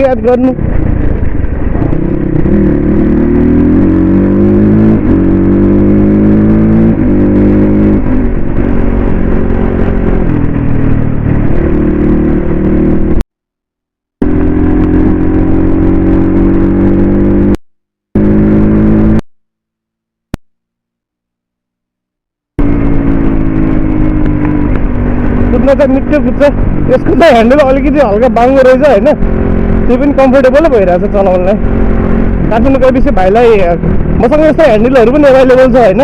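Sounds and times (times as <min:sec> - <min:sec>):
dirt bike engine revving: 0:01.8 - 0:13.2, 0:18.2 - 0:19.2.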